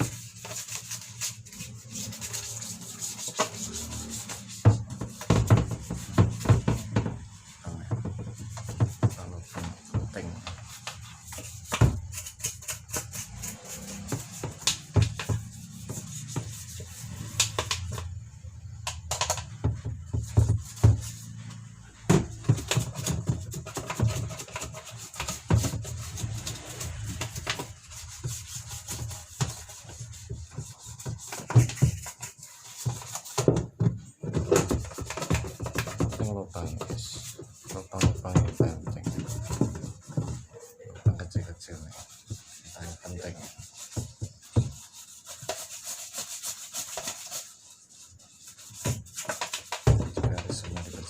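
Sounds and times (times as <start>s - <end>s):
brush scrubbing plastic: 0.0s - 51.0s
knocks on plastic: 4.7s - 10.5s.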